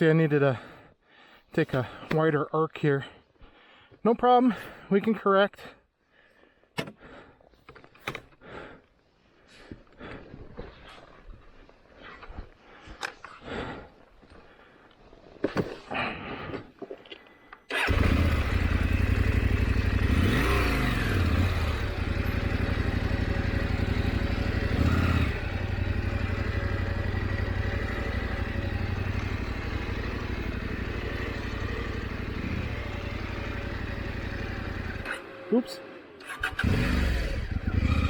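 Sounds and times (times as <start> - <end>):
motorcycle engine revving: 17.7 - 38.0.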